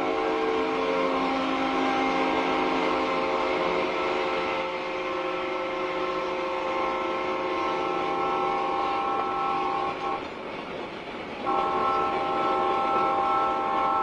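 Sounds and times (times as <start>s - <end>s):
moving train noise: 0.0s - 14.0s
locomotive air horn blast: 11.4s - 14.0s.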